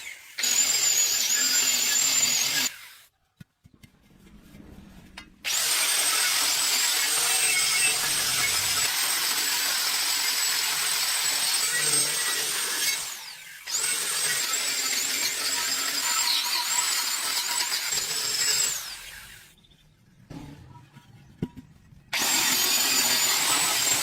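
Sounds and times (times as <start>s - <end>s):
power tool whining: 0.0s - 3.0s, 5.4s - 19.5s, 22.1s - 24.0s.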